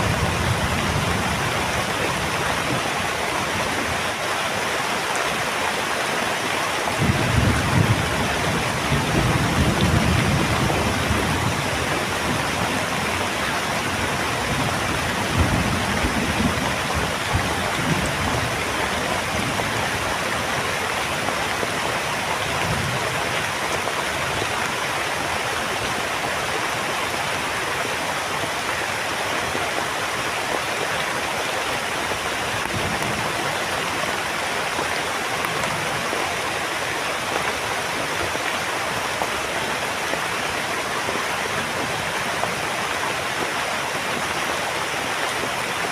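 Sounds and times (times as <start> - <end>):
heavy rain falling: 0.0 - 45.9
thunder rumbling: 7.0 - 13.2, 13.8 - 20.2.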